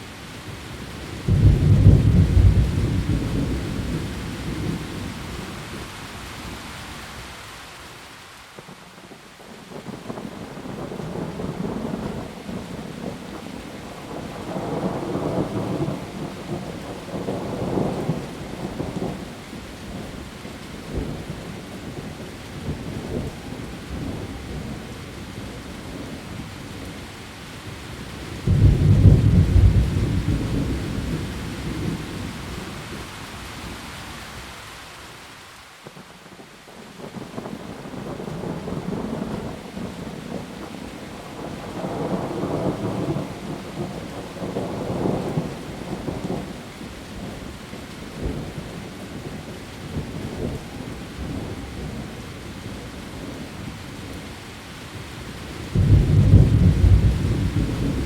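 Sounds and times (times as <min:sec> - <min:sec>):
heavy rain on leaves: 0:00.0 - 0:58.0
loud thunderclap: 0:01.3 - 0:04.8, 0:28.4 - 0:32.0, 0:55.7 - 0:58.0
thunder rumbling: 0:01.3 - 0:05.5, 0:28.3 - 0:33.0, 0:55.6 - 0:58.0.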